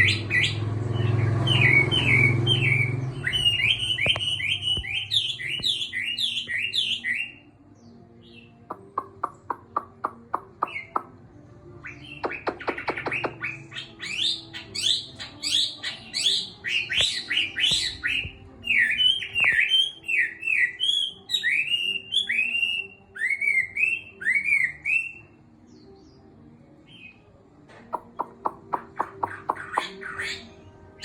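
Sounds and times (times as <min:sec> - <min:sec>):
bird singing whistled phrases: 0:00.0 - 0:07.4, 0:11.8 - 0:25.4.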